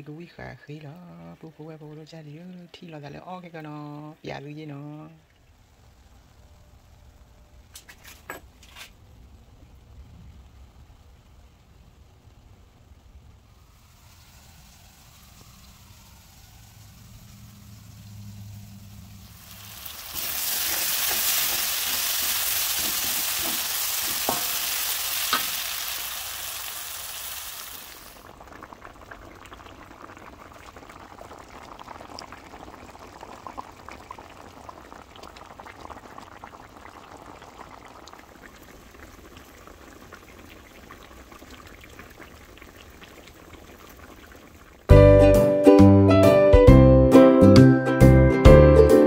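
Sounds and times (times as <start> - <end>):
curry bubbling in a pan: 9.6 - 44.9
food sizzling in hot oil: 13.4 - 45.0.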